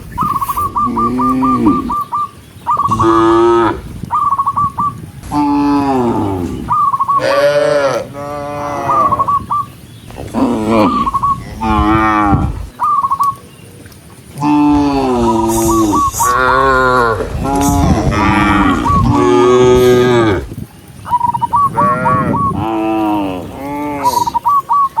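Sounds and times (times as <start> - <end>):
cattle mooing: 2.9 - 3.8, 5.2 - 9.2, 10.3 - 12.7, 14.4 - 20.5.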